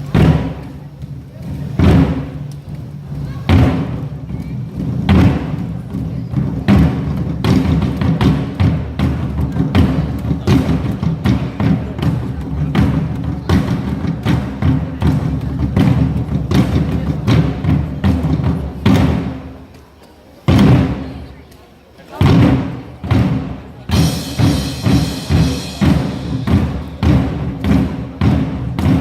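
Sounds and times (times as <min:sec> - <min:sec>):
group beating drums: 0:00.0 - 0:19.7, 0:20.4 - 0:21.3, 0:22.1 - 0:29.0
backing music track: 0:22.2 - 0:29.0.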